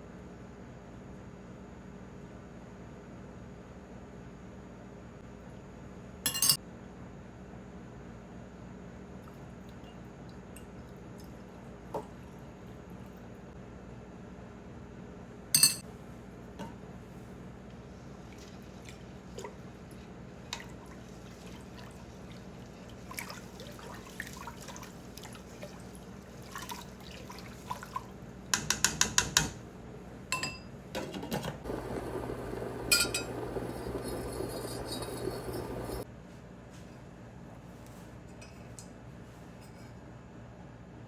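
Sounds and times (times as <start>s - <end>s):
glassware clinking: 6.3s - 6.6s, 15.6s - 15.8s, 31.7s - 36.0s
liquid pouring: 31.7s - 36.0s.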